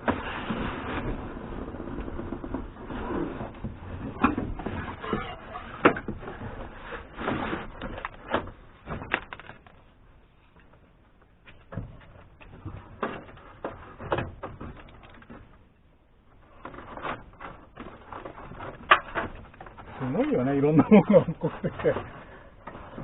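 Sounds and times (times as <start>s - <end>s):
sharp clicks and knocks: 7.7s - 9.9s, 11.4s - 15.8s, 16.4s - 20.0s.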